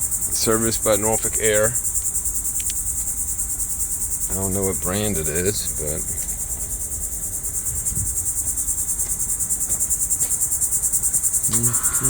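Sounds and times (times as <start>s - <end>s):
high-pitched insect buzz: 10.9s - 12.0s.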